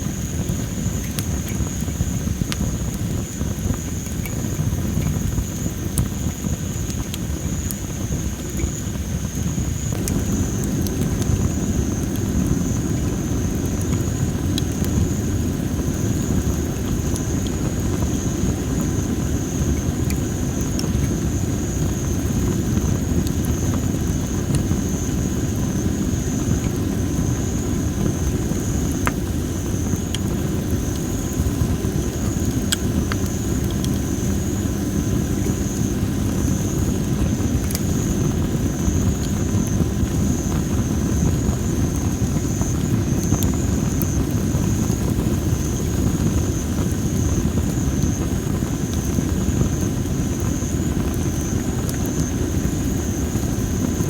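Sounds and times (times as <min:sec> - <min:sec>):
campfire crackling: 0:00.0 - 0:54.0
sharp pops of fire: 0:00.0 - 0:54.0.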